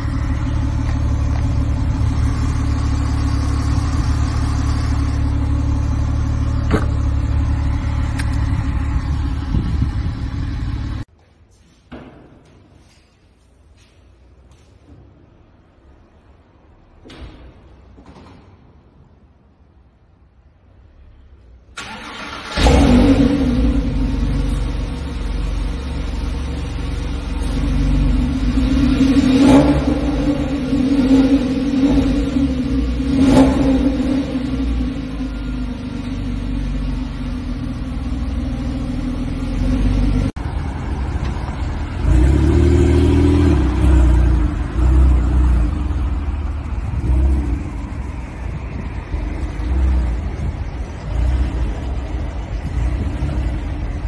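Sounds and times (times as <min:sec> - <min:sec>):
car engine idling: 0:00.0 - 0:11.1.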